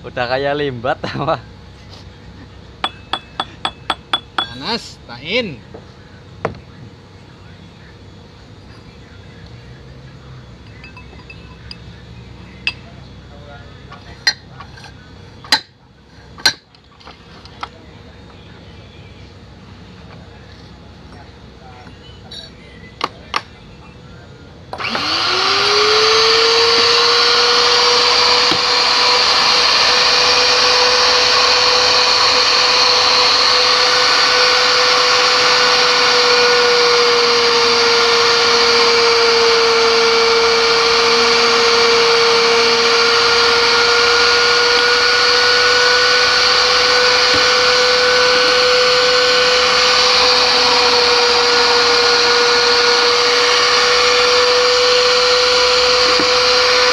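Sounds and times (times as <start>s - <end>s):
pipe-threading machine motor whine: 2.8s - 5.4s, 24.7s - 56.9s.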